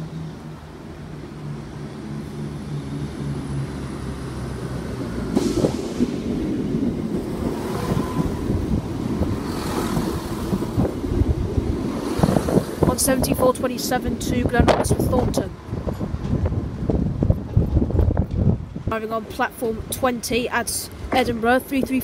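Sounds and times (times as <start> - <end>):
diesel train engine hum: 0.0 - 22.0
train rumble: 0.0 - 22.0
wheels clattering on track: 4.4 - 20.1.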